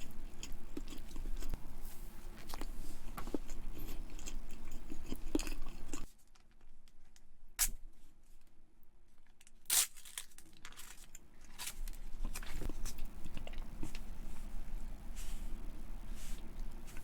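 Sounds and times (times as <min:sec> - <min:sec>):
crunchy chewing: 0:00.0 - 0:06.1, 0:10.0 - 0:17.0.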